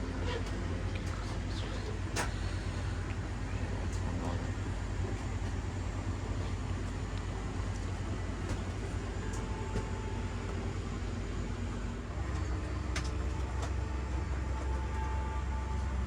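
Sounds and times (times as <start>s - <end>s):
aircraft cabin rumble: 0.0s - 16.0s.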